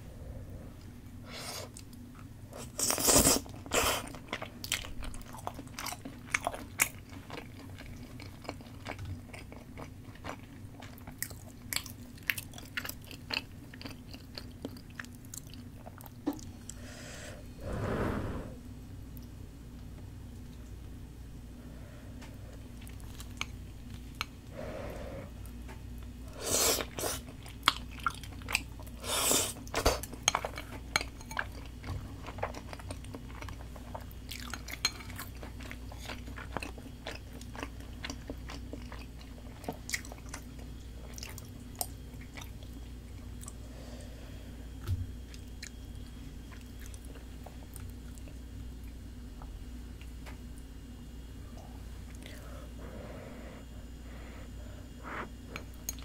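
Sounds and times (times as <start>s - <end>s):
person chewing food: 1.6s - 16.8s, 22.6s - 24.4s, 25.4s - 43.6s, 44.7s - 49.0s.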